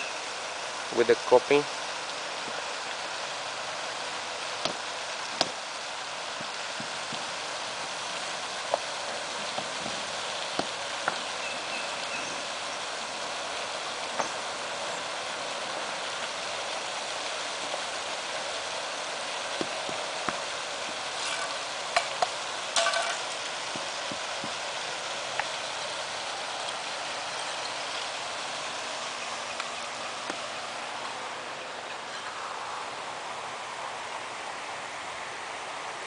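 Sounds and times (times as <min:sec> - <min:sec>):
steady hiss: 0:00.0 - 0:36.0
brick pavers knocking: 0:21.2 - 0:24.5.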